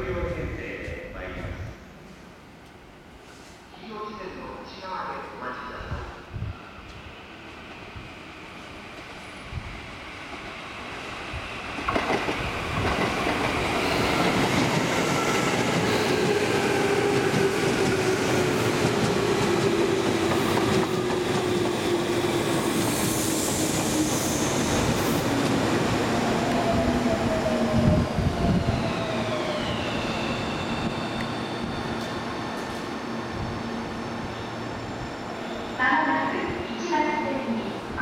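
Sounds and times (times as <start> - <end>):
high squeal: 28.8 - 35.8.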